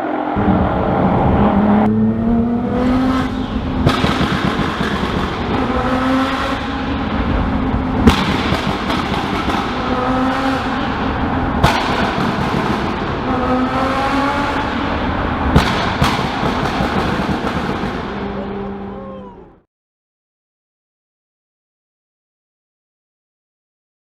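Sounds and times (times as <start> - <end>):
car engine revving hard: 0.0 - 19.1
sharp crack: 3.8 - 6.6, 8.0 - 11.0, 11.6 - 13.4, 15.5 - 18.5.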